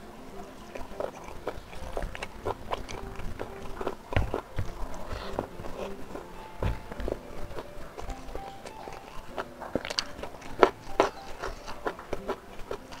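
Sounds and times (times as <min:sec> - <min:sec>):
wet chewing and smacking: 0:00.0 - 0:13.0.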